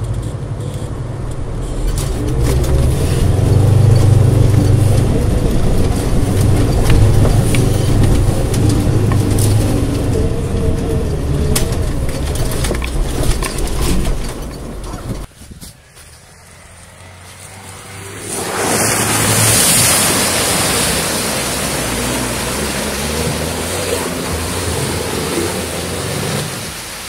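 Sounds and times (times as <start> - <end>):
vehicle knocks and clatter: 0.0 - 16.2
engine running hard under load: 0.9 - 26.9.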